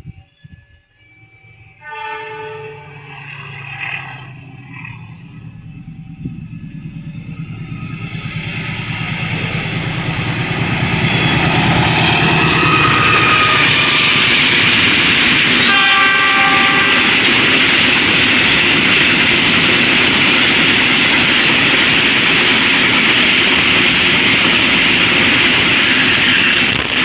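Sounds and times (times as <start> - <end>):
train rumble: 0.0 - 27.0
train horn: 1.6 - 5.7, 11.0 - 17.6
wheels clattering on rails: 3.0 - 15.7, 16.5 - 27.0.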